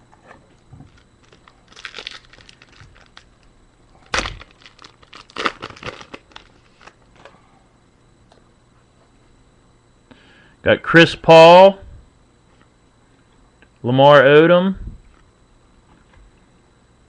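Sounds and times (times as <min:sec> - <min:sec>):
wrapper crinkling: 0:00.9 - 0:03.4, 0:04.1 - 0:07.0
wrapper tearing: 0:00.9 - 0:03.4, 0:04.1 - 0:07.0.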